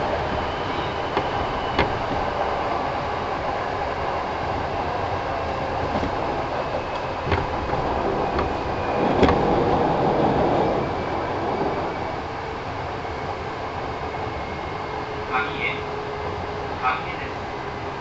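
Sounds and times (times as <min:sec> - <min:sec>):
wheels rumbling on rail: 0:00.0 - 0:18.0
clicks at rail joints: 0:00.2 - 0:02.5, 0:05.9 - 0:09.9.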